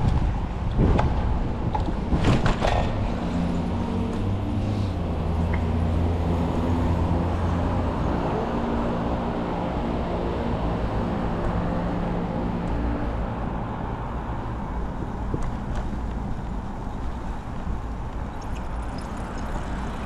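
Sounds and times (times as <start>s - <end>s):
steady road noise: 0.0s - 20.0s
vehicle engine running close by: 2.4s - 13.1s.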